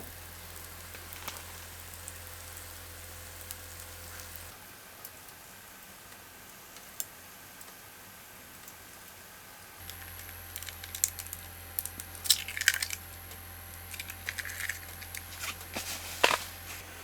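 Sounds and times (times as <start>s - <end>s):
utensils and food clicking: 9.8s - 16.7s.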